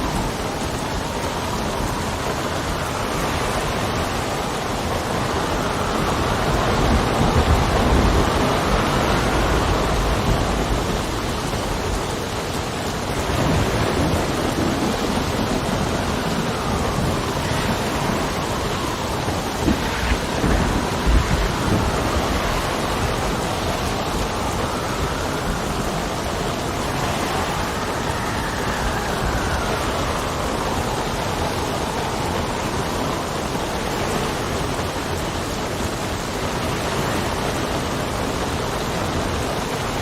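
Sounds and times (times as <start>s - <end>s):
heavy rain: 0.0s - 40.0s
wind gusting: 0.0s - 40.0s
low rumbling: 13.2s - 32.9s.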